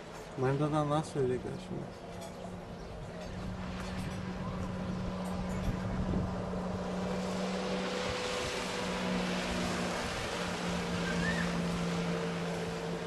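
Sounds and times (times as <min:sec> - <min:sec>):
water noise: 0:00.0 - 0:13.0
watercraft engine running: 0:00.0 - 0:13.0
wind noise: 0:03.3 - 0:07.0.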